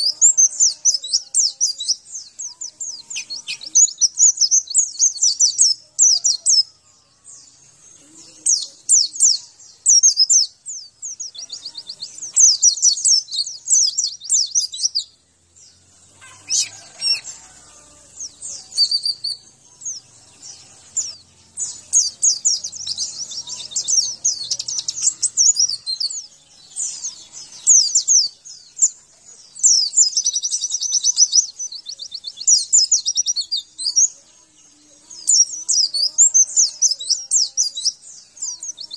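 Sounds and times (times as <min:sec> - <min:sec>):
bird twittering song: 0:00.0 - 0:38.9.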